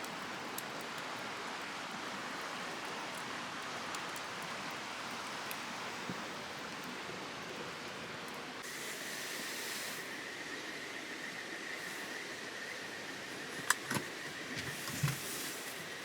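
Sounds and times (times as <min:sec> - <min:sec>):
campfire crackling and popping: 0:00.0 - 0:07.2.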